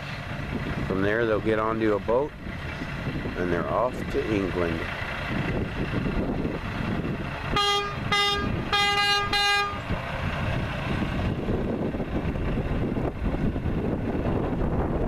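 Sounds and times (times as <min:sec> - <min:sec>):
truck engine running: 0:00.0 - 0:15.0
truck horn honking: 0:07.5 - 0:10.0.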